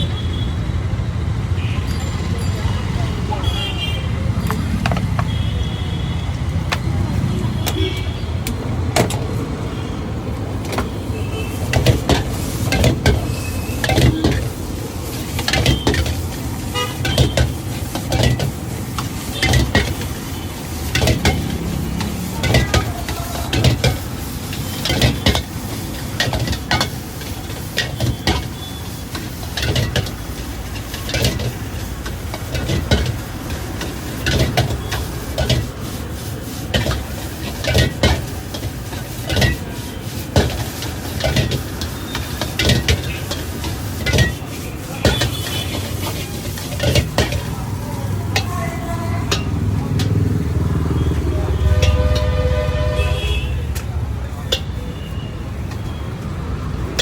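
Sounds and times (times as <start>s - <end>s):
traffic rumble: 0.0s - 57.0s
faint voices: 1.9s - 8.8s, 19.4s - 28.6s, 29.6s - 57.0s
sharp clanks and knocks: 4.4s - 5.3s, 20.9s - 24.1s, 24.8s - 35.7s, 40.4s - 47.5s.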